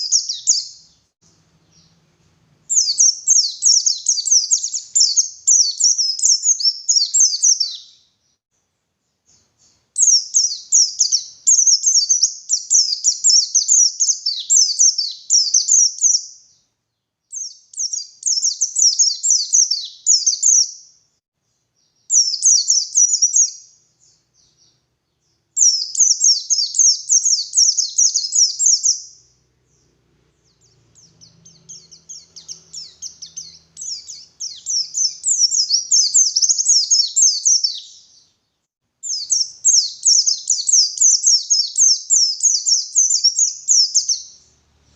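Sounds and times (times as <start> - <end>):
bird twittering song: 0.0 - 8.4, 9.0 - 21.0, 21.8 - 44.9.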